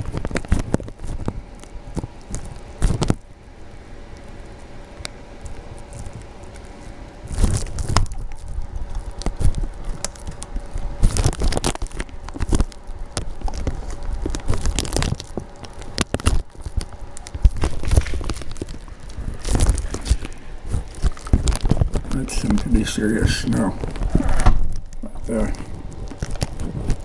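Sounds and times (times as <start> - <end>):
microphone rustling: 0.0 - 3.2, 5.5 - 27.0
footsteps crunching through snow: 16.2 - 27.0.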